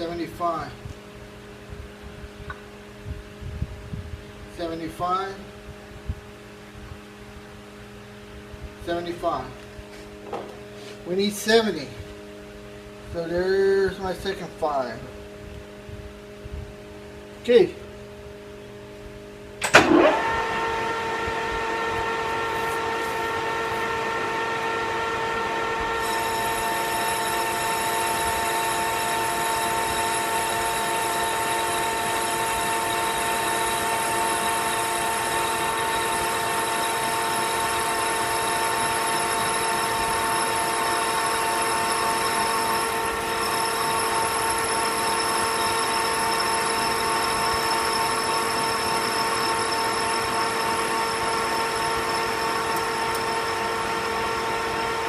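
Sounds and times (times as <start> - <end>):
metal lathe whining: 19.6 - 55.0.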